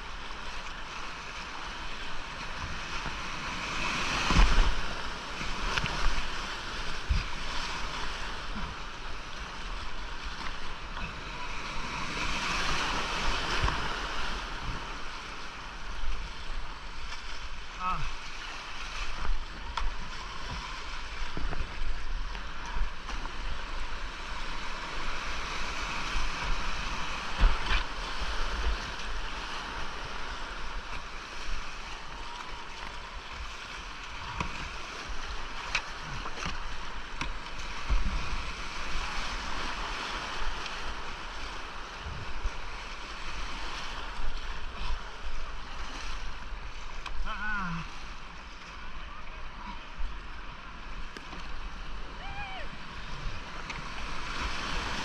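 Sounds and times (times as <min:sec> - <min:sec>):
paddle splashes: 0:00.0 - 0:55.0
creek rapids rushing: 0:51.9 - 0:55.0.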